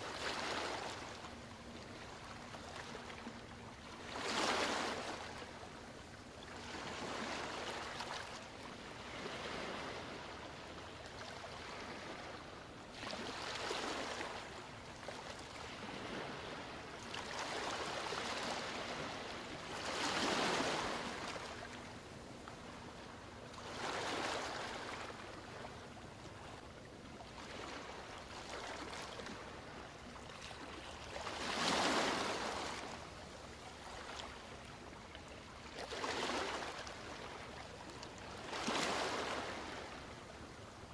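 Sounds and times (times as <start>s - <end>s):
ocean waves breaking on beach: 4.0s - 5.5s, 8.9s - 10.6s, 15.5s - 21.8s, 31.2s - 33.0s, 38.4s - 40.5s.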